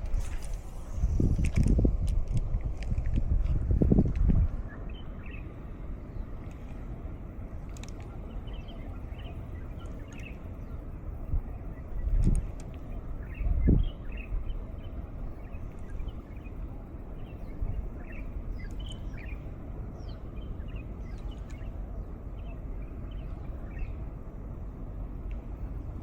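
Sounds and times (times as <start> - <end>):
breeze rumbling on microphone: 0.0 - 26.0
bird chirps: 17.2 - 19.4.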